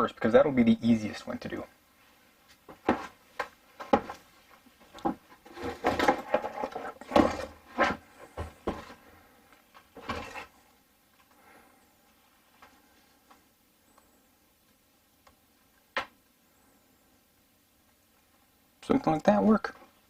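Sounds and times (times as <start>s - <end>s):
hands handling plumbing parts: 2.5s - 10.6s.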